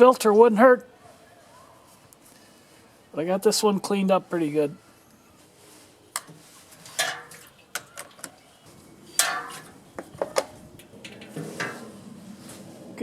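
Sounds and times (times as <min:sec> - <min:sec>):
scraping rattles: 0:09.2 - 0:12.6.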